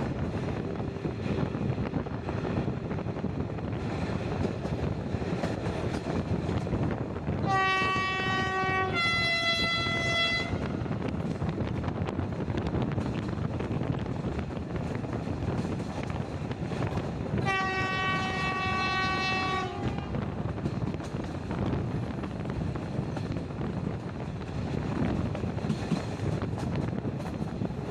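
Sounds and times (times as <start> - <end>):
moving train rumble: 0.0 - 27.9
locomotive horn blast: 7.4 - 10.8, 17.4 - 20.1.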